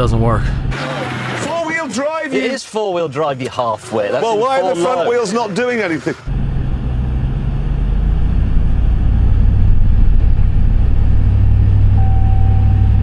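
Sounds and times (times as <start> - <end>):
truck engine under load: 0.0 - 1.8, 5.2 - 13.0
steady electronic beep: 12.0 - 13.0.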